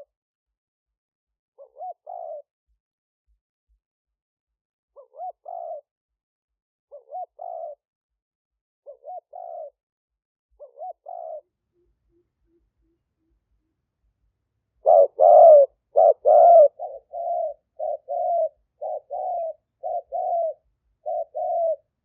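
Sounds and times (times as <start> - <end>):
dove cooing: 1.6 - 2.5, 5.0 - 5.9, 6.9 - 7.8, 8.9 - 9.8, 10.6 - 13.7, 14.8 - 22.0.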